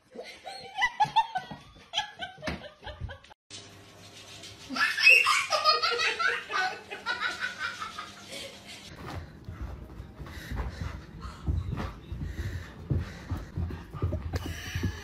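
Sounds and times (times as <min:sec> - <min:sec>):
people laughing: 0:04.7 - 0:08.9.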